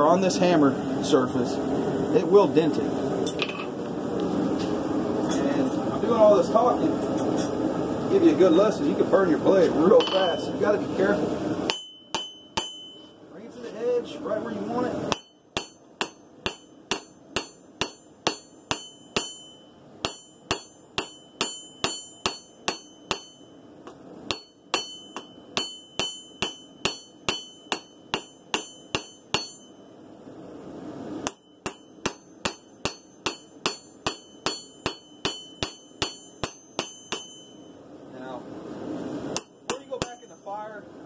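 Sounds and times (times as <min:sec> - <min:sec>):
hammer striking metal on anvil: 0:10.0 - 0:10.6, 0:11.7 - 0:13.2, 0:15.1 - 0:23.6, 0:24.3 - 0:29.9, 0:31.2 - 0:37.8, 0:39.4 - 0:40.7.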